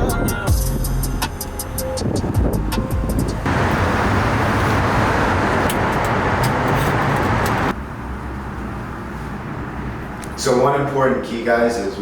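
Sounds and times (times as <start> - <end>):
road traffic rushing: 1.4 - 10.8.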